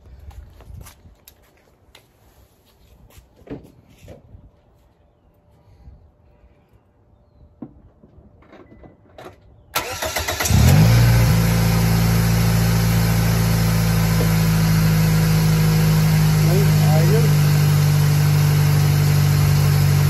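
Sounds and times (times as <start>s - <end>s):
car engine cranking and idling: 9.8s - 20.0s.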